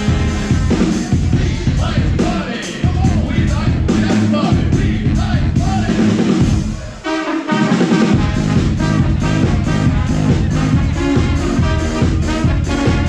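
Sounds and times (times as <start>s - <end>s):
horns playing chords: 0.0s - 2.3s, 5.6s - 13.0s
band music with drums: 0.0s - 13.0s.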